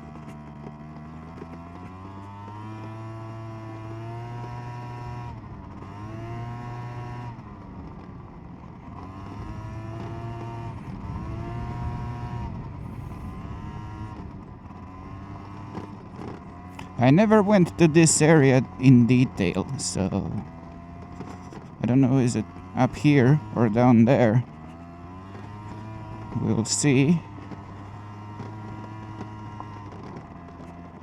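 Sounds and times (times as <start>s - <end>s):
scooter two-stroke engine revving: 0.0s - 31.0s.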